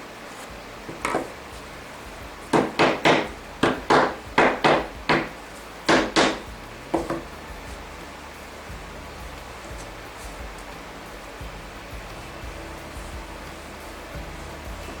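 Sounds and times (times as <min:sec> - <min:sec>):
hammer striking wood: 0:00.8 - 0:01.4, 0:02.3 - 0:07.9.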